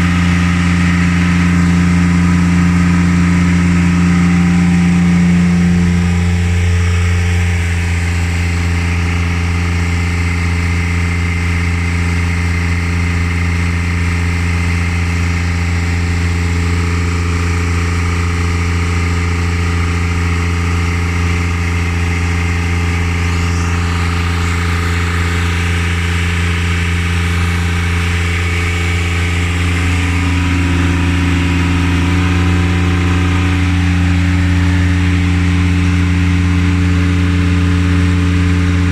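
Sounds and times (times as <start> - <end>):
higher tone: 0.0 - 9.1
engine humming steadily: 0.0 - 38.9.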